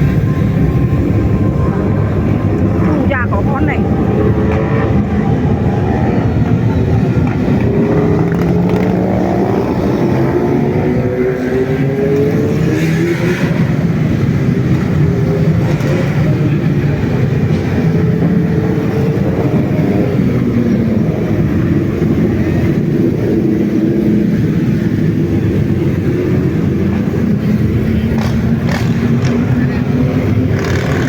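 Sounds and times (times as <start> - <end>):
motorcycle engines running: 0.0 - 31.0.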